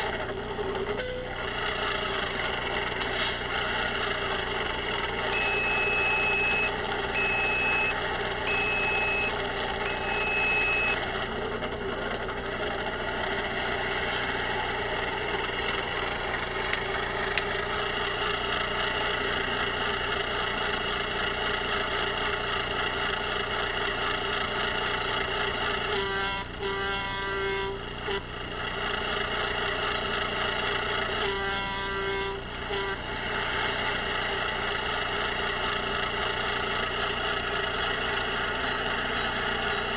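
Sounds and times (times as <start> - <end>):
diesel engine idling: 0.0 - 39.9
reversing beeps: 1.0 - 1.3, 5.4 - 11.0
short horn blasts: 25.9 - 28.2, 31.2 - 33.0.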